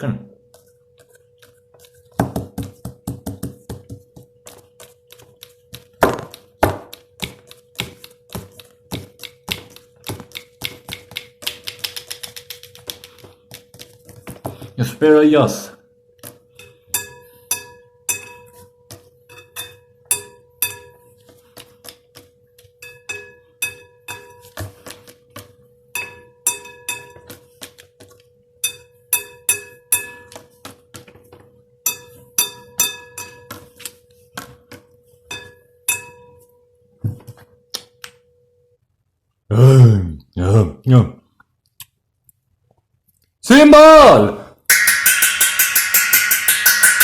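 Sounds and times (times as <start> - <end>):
drumstick clinking on glassware: 44.7 - 47.0.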